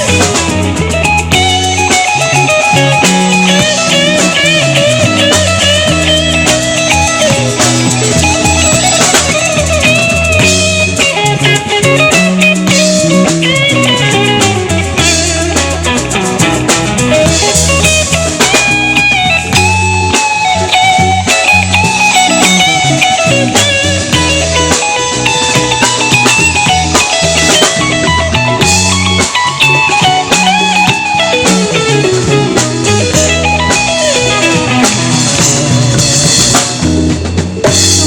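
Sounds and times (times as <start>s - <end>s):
bass guitar: 0.0s - 38.0s
drum kit: 0.0s - 38.0s
lead guitar bending lines: 0.0s - 38.0s.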